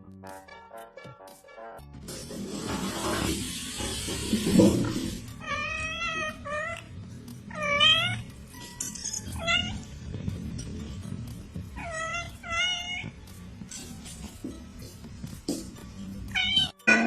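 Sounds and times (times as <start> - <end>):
cat meowing: 5.4 - 6.9, 7.5 - 8.3, 9.3 - 9.9, 11.8 - 13.2, 16.3 - 16.8.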